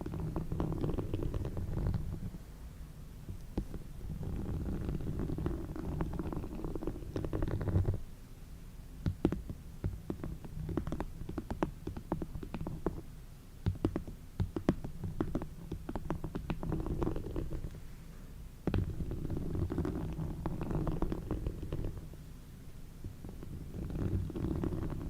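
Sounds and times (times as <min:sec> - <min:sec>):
soft clicks and taps: 0:03.3 - 0:03.9.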